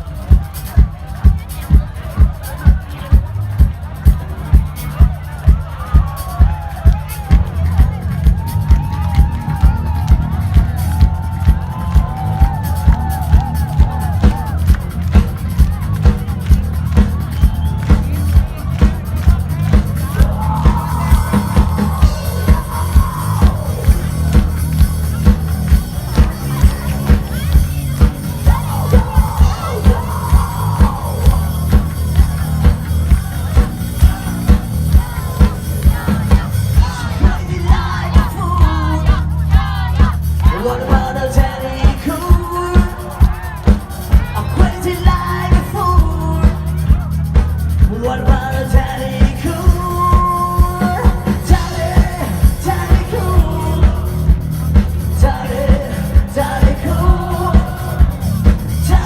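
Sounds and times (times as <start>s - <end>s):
heavy drum beat: 0.0s - 59.0s
rock band playing live: 0.0s - 59.0s
person singing: 19.5s - 47.2s, 47.8s - 59.0s.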